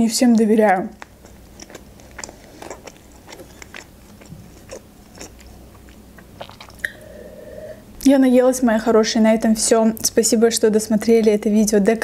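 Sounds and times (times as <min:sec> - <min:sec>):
person chewing food: 0:00.2 - 0:07.2
person sipping and swallowing: 0:01.0 - 0:07.8.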